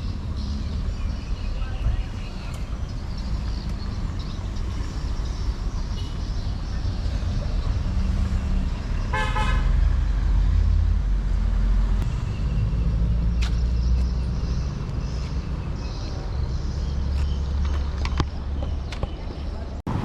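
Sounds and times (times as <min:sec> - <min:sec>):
vehicle horn toot: 0:09.1 - 0:09.7.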